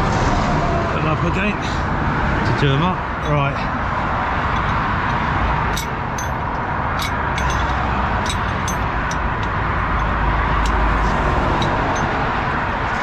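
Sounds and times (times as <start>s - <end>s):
motorway traffic roar: 0.0s - 13.0s
ratchet clicking on bolts: 4.5s - 12.2s.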